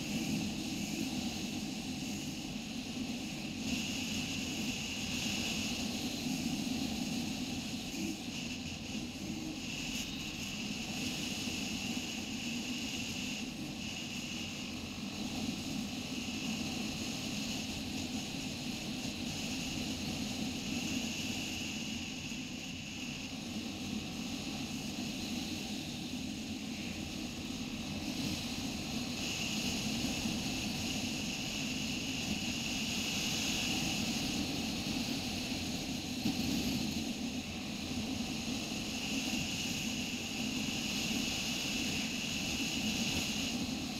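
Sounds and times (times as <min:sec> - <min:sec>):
wind and road noise: 0:00.0 - 0:43.9.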